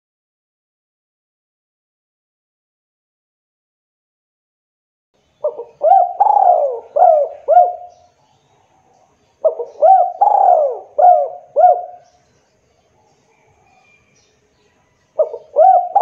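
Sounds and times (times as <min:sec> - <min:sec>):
dove cooing: 0:05.4 - 0:08.0, 0:09.4 - 0:12.1, 0:15.2 - 0:16.0.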